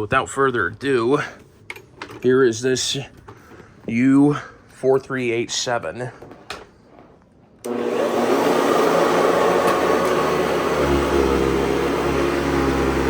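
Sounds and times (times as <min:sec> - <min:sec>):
vacuum cleaner motor running: 0:07.7 - 0:13.0.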